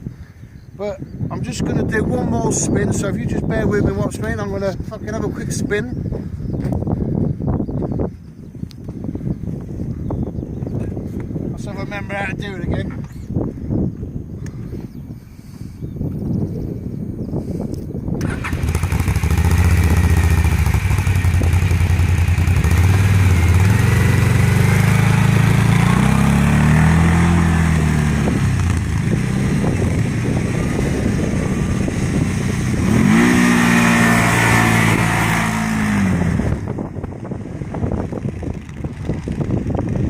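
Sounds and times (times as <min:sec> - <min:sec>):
quad bike engine revving: 0:18.2 - 0:40.0.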